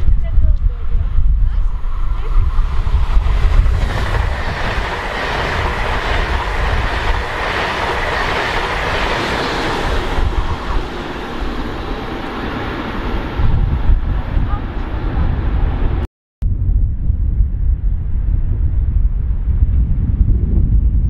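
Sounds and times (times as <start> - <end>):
train passing on rails: 0.0 - 16.1.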